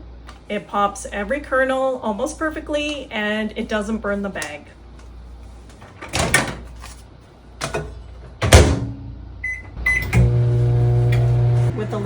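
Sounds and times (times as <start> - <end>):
microwave humming: 3.8 - 12.0
keypad beeps: 9.4 - 10.1.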